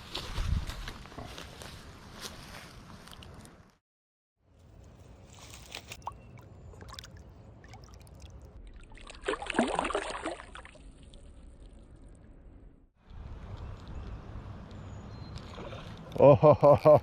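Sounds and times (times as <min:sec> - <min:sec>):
water splashing: 0:06.0 - 0:12.4.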